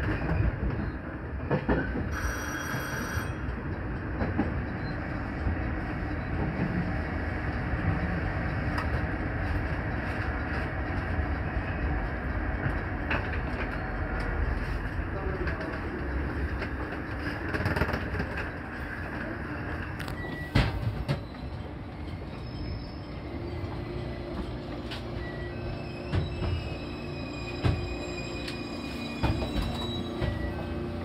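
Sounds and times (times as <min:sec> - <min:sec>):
train rumbling and braking: 0:00.0 - 0:31.0
faint wheel squeals: 0:20.2 - 0:30.9.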